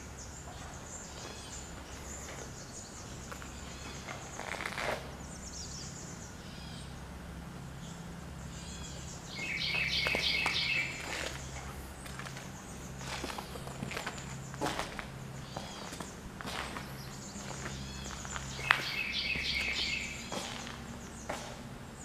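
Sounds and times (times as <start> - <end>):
birds chirping: 0.0 - 22.0
steady low hum: 0.0 - 22.0
loud rapid bird trill: 7.8 - 11.6, 12.5 - 21.3.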